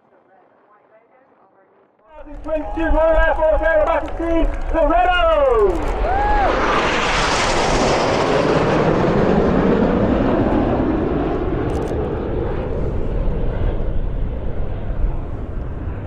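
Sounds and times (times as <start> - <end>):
jet roar flying past: 2.1 - 16.0.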